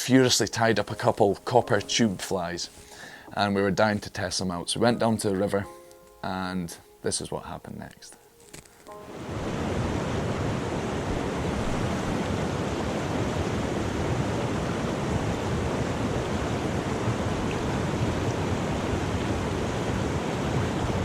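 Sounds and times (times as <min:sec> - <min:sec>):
fast-flowing river rushing: 0:09.1 - 0:21.0.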